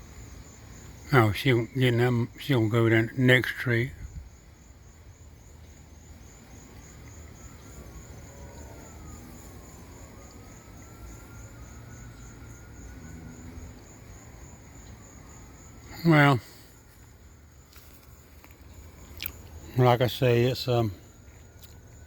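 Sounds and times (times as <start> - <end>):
insects chirping: 0.0 - 22.0
distant siren wailing: 1.0 - 4.0, 5.2 - 22.0.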